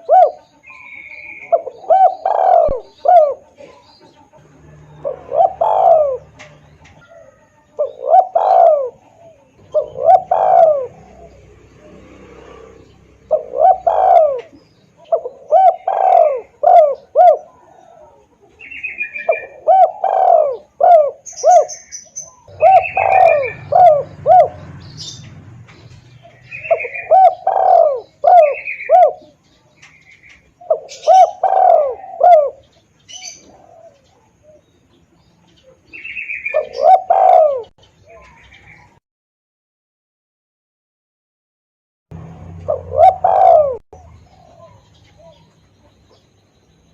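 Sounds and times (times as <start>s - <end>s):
dove cooing: 0.0s - 39.0s, 42.2s - 46.2s.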